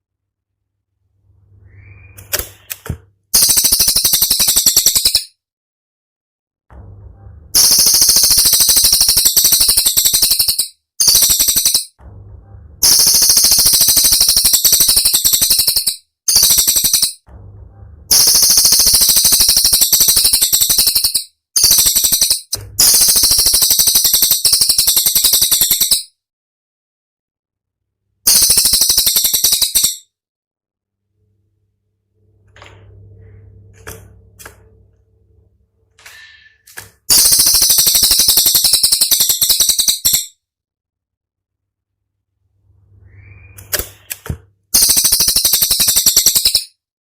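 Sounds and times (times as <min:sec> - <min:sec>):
bird singing rapid high trills: 0:01.6 - 0:02.2, 0:03.4 - 0:05.3, 0:07.6 - 0:12.0, 0:12.8 - 0:17.2, 0:18.1 - 0:26.1, 0:28.3 - 0:30.0, 0:37.1 - 0:40.3, 0:43.0 - 0:43.7, 0:44.8 - 0:46.8.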